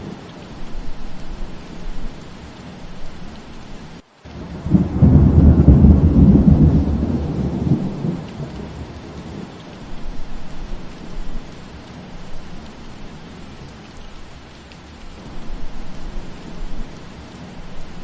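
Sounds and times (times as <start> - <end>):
steady rain: 0.0 - 18.0
loud low thunder roll: 4.5 - 9.2.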